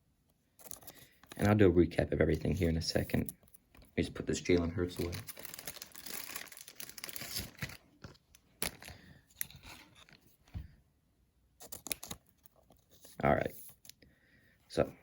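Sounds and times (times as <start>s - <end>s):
plastic sleeves crinkling: 2.2s - 10.4s, 11.6s - 13.9s.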